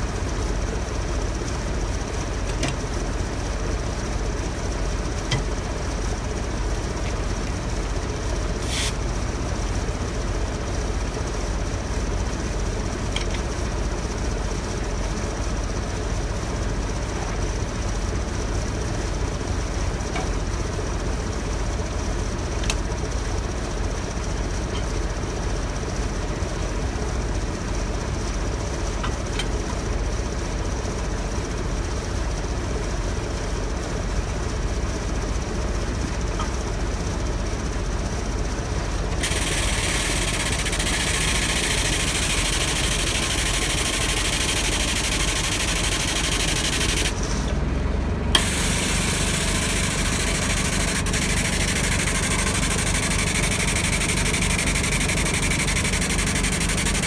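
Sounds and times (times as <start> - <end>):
engine running steadily: 0.0 - 57.0
loud high hiss of compressed air: 8.6 - 9.0, 39.2 - 47.2, 48.4 - 53.5.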